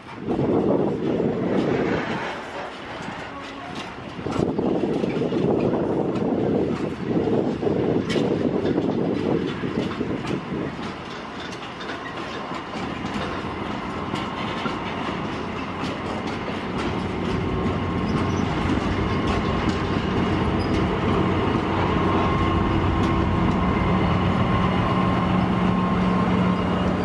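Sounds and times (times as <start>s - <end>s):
diesel locomotive engine: 0.0s - 27.0s
wagon wheels clicking over rail joints: 2.3s - 23.7s.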